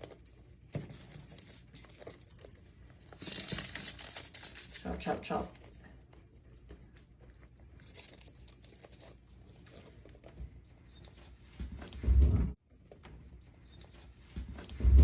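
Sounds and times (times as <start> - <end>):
bird crunching dried leaves: 3.0 - 5.6.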